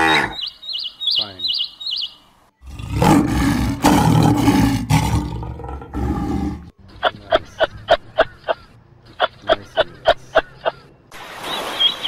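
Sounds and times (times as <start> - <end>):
large animal roaring: 2.6 - 6.7.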